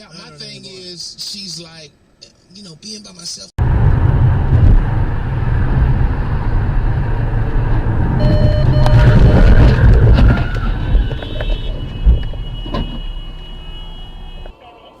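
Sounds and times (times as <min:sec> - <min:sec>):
vehicle engine and road rumble: 0:03.6 - 0:14.6
short beeps: 0:08.2 - 0:09.8.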